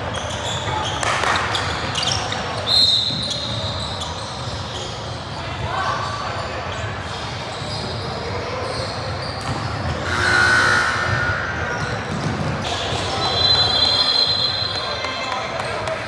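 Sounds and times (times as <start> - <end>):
basketball bouncing on court: 9.4 - 13.2
high squeaks: 10.0 - 12.2.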